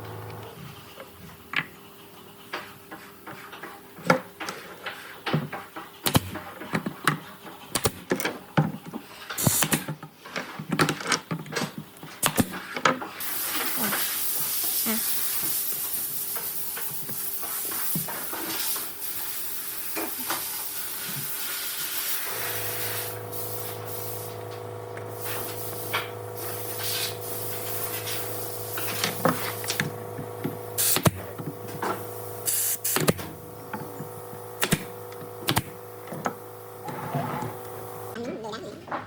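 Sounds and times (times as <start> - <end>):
steady hiss: 13.2 - 24.4, 25.1 - 29.9.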